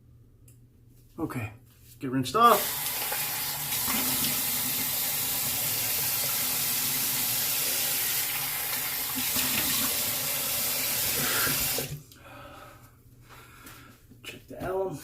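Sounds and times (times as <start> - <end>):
face rinsing with water: 2.6 - 12.0.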